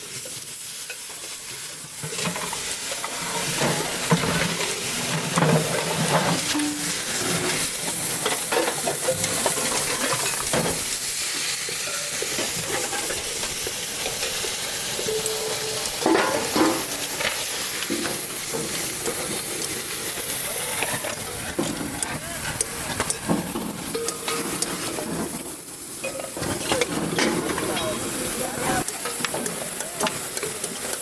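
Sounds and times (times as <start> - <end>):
steady hiss: 0.0 - 31.0
sharp metal clanks: 15.0 - 18.8, 23.9 - 24.8
metal knocking and scraping: 15.1 - 17.0.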